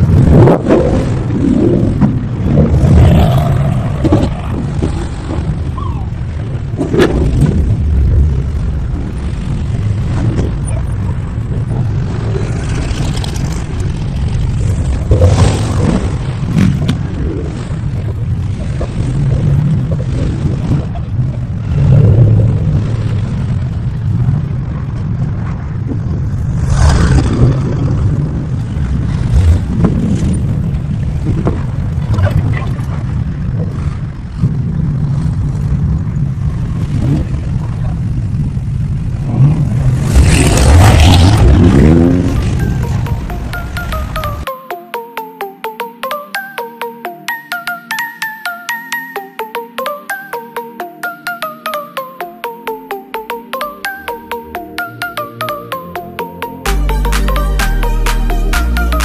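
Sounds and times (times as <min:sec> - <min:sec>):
car engines rumbling: 0:00.0 - 0:43.2.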